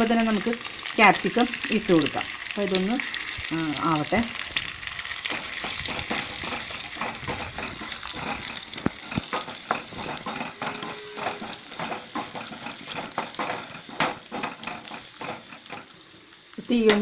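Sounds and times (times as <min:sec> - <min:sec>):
onions sizzling in hot oil: 0:00.0 - 0:17.0
stirring clicks against pan: 0:05.3 - 0:15.9.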